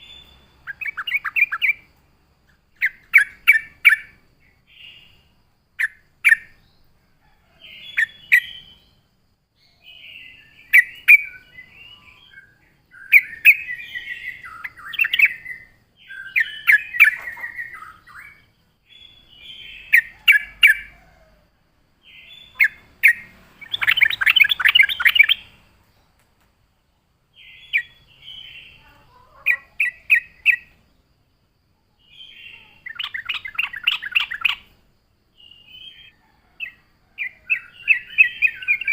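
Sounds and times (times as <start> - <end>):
bulbul singing: 0.0 - 7.0, 7.6 - 21.1, 22.0 - 26.2, 27.3 - 31.2, 32.0 - 38.9.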